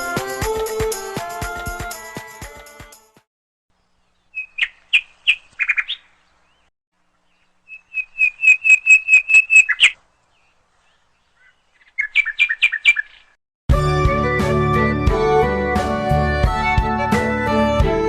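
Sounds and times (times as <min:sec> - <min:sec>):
bird chirping: 0:03.7 - 0:13.4.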